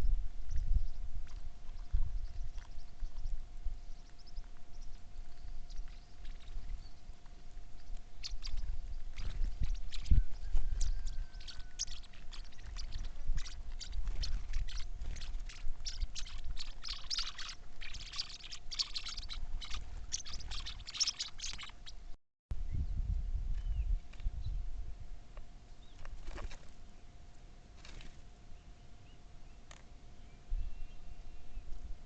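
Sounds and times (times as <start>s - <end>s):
birds chirping: 0.0s - 22.2s.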